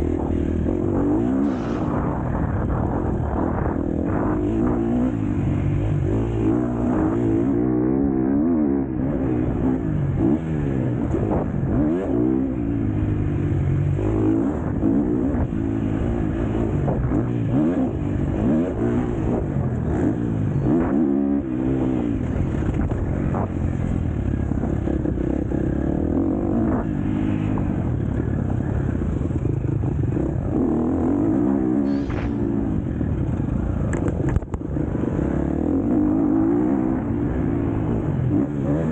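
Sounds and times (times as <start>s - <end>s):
motocross engine revving: 30.1s - 32.8s.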